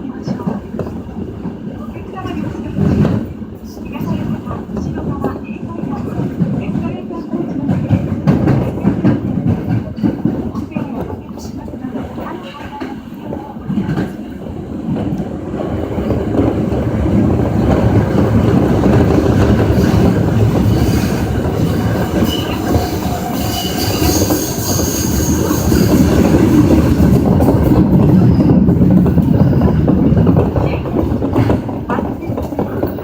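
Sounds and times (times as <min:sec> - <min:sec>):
subway train rumbling in tunnel: 0:00.0 - 0:33.0
high wheel squeal: 0:20.6 - 0:26.5.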